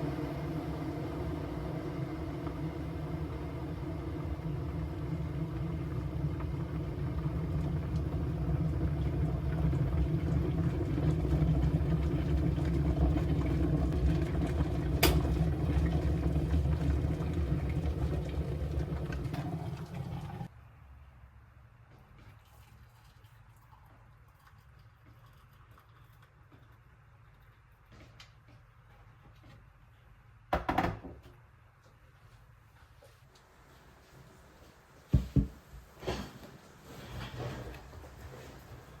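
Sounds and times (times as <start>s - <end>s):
kitchen appliance humming: 0.0s - 20.5s.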